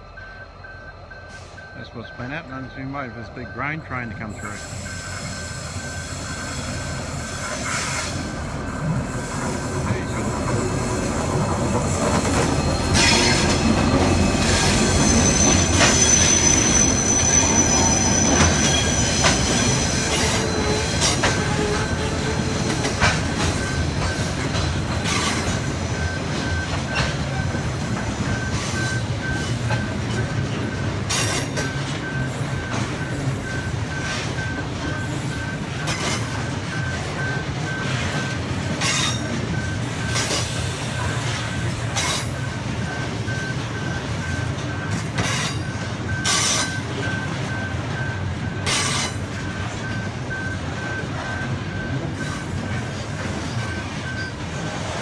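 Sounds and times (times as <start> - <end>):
high beeping alarm: 0.0 - 54.7
train wheels rumbling: 0.0 - 55.0
wheels clacking over rail joints: 7.5 - 55.0.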